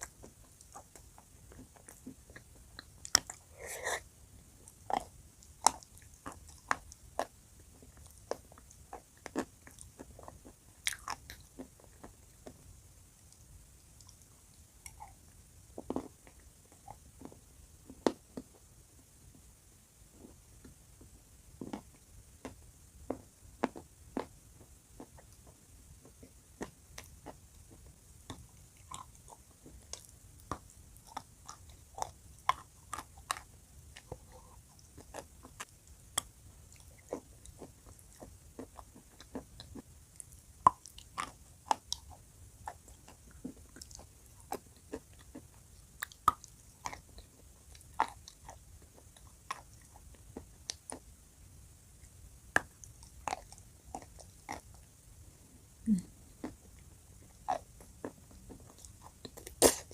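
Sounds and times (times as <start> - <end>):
chalk crunching while chewed: 0.0 - 12.6, 25.0 - 51.0, 56.4 - 59.9.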